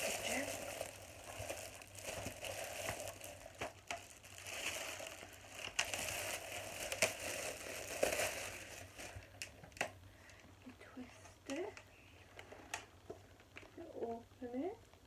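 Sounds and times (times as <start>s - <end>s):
packaging rustling and crinkling: 0.0s - 10.0s
sharp crackles and clicks: 0.0s - 10.0s.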